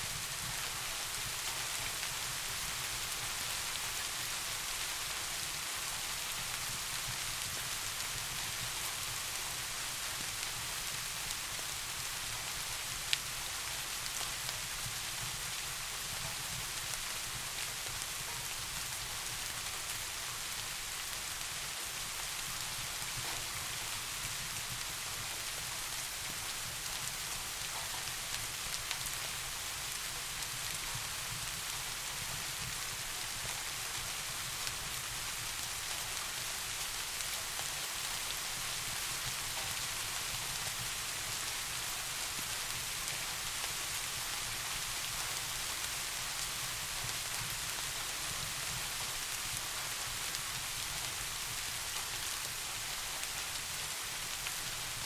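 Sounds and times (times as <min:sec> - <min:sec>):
soft rain: 0:00.0 - 0:55.0.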